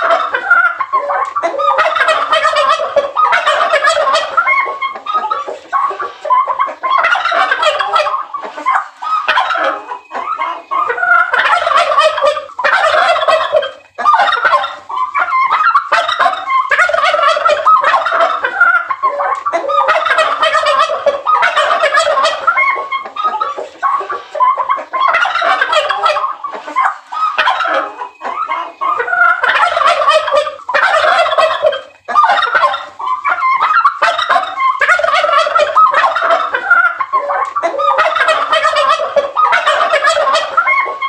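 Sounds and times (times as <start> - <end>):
turkeys gobbling: 0.0 - 41.0.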